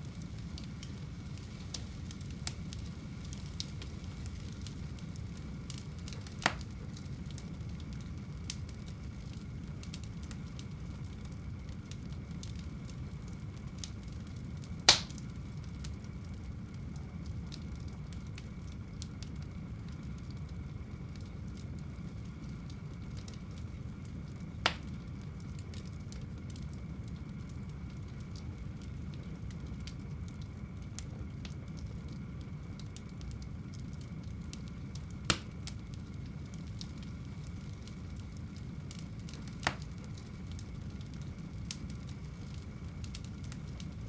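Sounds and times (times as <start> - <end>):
fire crackling: 0.0 - 44.0
low rumble of flames: 0.0 - 44.0
loud fire pops: 0.1 - 16.4, 24.4 - 26.7, 34.1 - 44.0.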